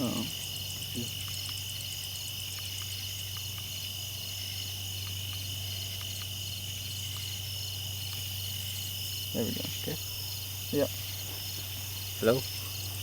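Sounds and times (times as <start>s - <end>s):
faint ticks: 0.0s - 8.4s
crickets chirping: 0.0s - 13.0s.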